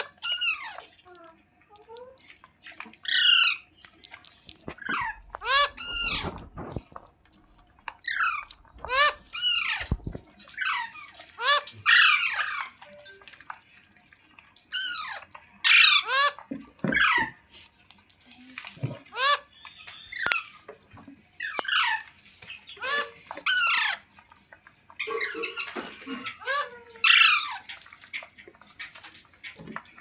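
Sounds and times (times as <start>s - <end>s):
parrot squawking: 0.0s - 0.8s, 3.0s - 3.6s, 4.7s - 6.7s, 8.0s - 13.6s, 14.7s - 17.3s, 19.1s - 20.5s, 22.7s - 24.0s, 25.0s - 28.2s.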